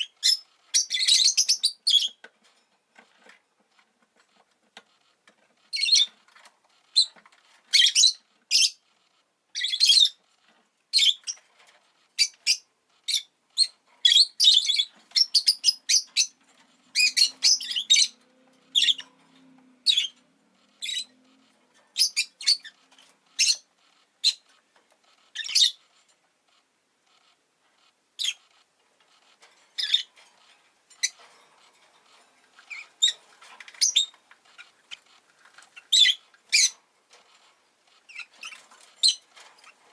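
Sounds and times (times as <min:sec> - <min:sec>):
lovebird chirps: 0:00.0 - 0:02.2, 0:05.7 - 0:06.2, 0:06.8 - 0:10.2, 0:10.9 - 0:11.4, 0:12.2 - 0:24.5, 0:25.1 - 0:25.9, 0:28.2 - 0:28.6, 0:29.8 - 0:30.1, 0:32.6 - 0:36.8, 0:38.0 - 0:39.8.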